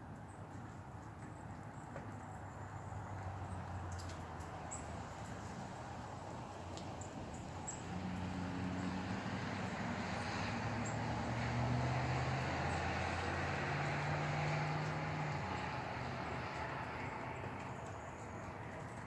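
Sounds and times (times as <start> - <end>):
distant engine droning: 6.5 - 19.0.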